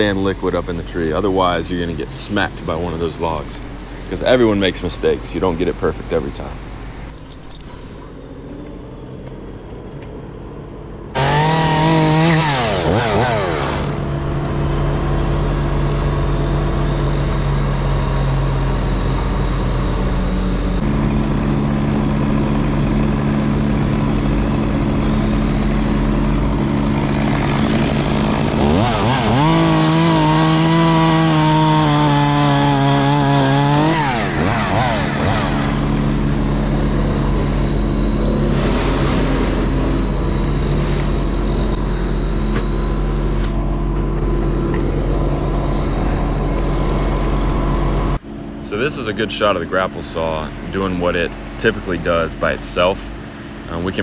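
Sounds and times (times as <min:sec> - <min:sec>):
chainsaw revving and cutting: 0:11.2 - 0:20.0, 0:20.7 - 0:41.7.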